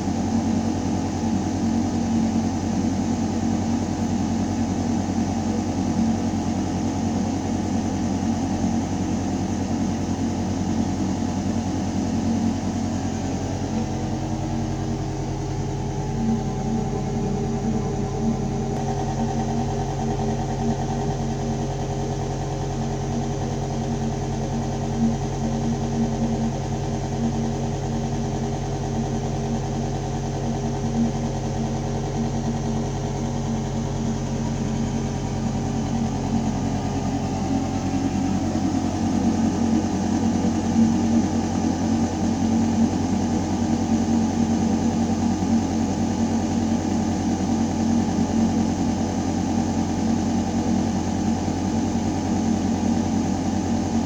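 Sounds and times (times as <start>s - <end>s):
rough mechanical hum: 0.0s - 54.0s
ventilation system humming: 9.6s - 21.0s, 32.2s - 54.0s.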